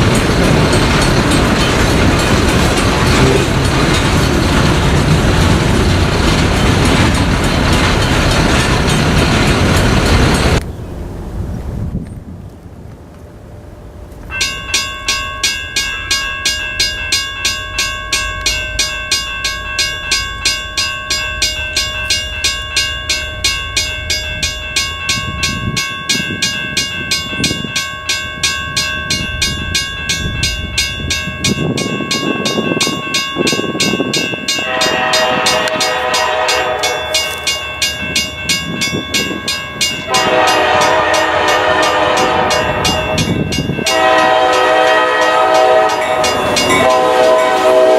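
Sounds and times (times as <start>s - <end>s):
diesel freight train rumbling: 0.0s - 47.9s
bell ringing: 14.3s - 47.9s
locomotive horn blasts: 34.5s - 37.5s, 40.1s - 47.9s.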